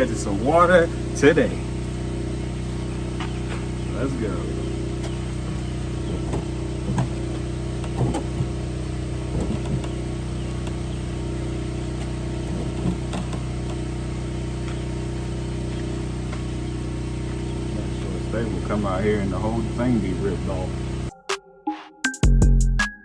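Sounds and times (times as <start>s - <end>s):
motor humming: 0.0s - 21.1s
light knocks and clatters: 5.0s - 8.7s, 9.3s - 10.9s, 11.8s - 13.9s.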